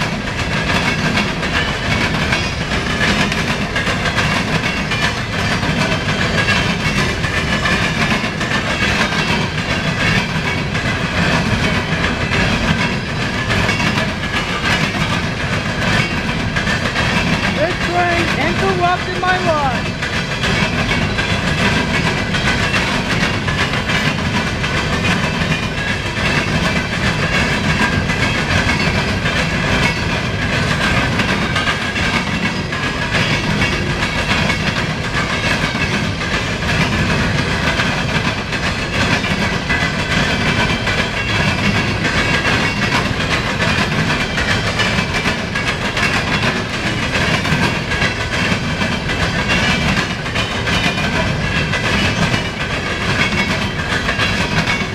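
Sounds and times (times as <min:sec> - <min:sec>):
train wheels clattering on rails: 0:00.0 - 0:54.9.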